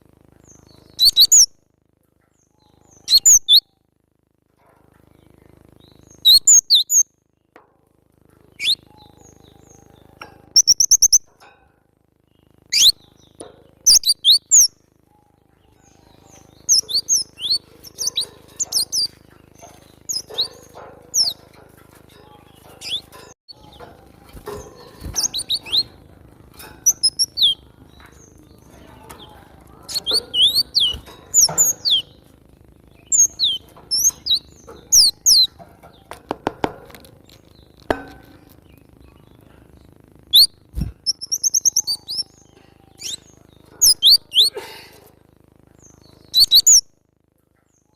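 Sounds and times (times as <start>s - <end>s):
faint low hum: 0.0s - 47.9s
bird high chirps: 0.4s - 1.6s, 2.4s - 3.8s, 5.2s - 7.1s, 8.5s - 11.3s, 12.4s - 26.0s, 26.6s - 36.2s, 38.6s - 44.6s, 45.7s - 46.9s.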